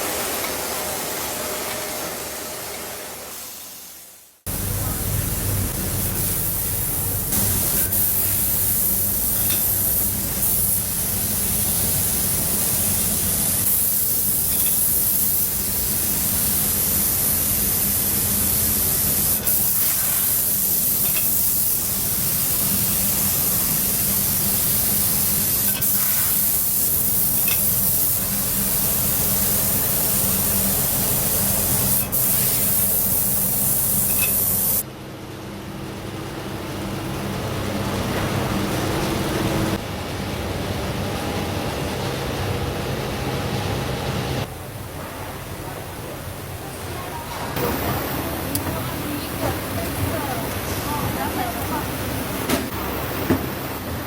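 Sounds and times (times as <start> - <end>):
low machine hum: 4.5 - 14.6
loud hiss of escaping air: 5.5 - 34.8.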